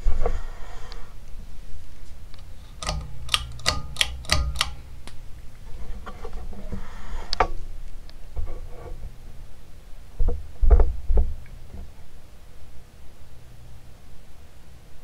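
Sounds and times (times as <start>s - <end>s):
ceiling fan humming: 1.1s - 10.1s
sharp clicks: 2.3s - 5.6s.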